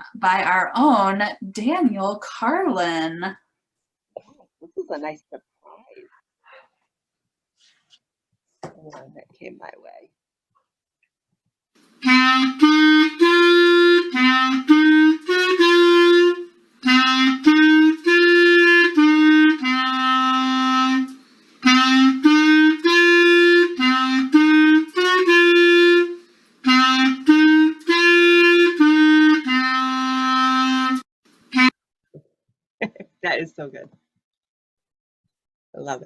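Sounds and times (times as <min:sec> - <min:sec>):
woodwind instrument playing lively tune: 0:12.0 - 0:31.7.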